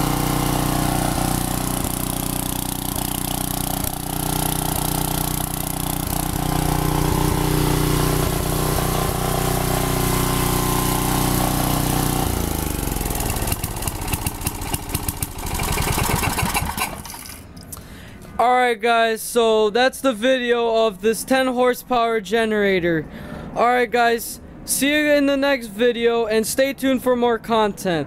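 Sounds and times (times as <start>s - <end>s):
generator engine running: 0.0s - 18.2s.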